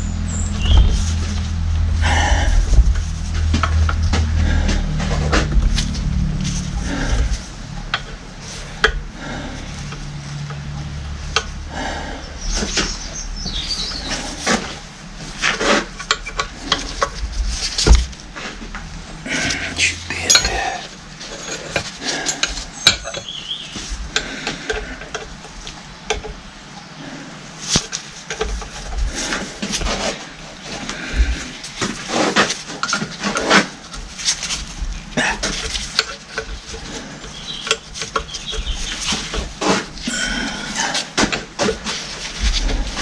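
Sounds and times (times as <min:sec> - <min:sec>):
metal tools and parts clinking: 0:19.3 - 0:23.4.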